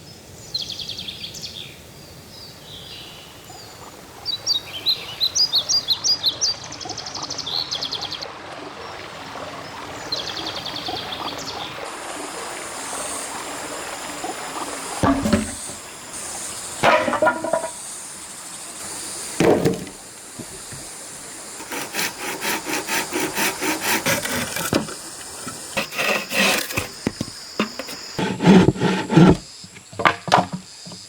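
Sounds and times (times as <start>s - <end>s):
outdoor background noise: 0.0s - 31.0s
thump: 15.0s - 15.8s, 19.4s - 20.9s.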